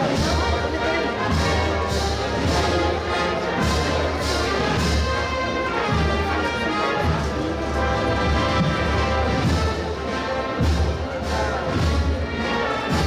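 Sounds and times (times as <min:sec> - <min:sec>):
brass marching band playing: 0:00.0 - 0:13.0.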